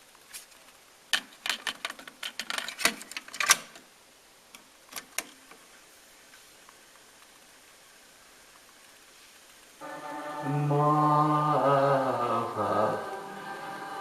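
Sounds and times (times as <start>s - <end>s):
cassette deck clicks and clacks: 1.2s - 3.8s.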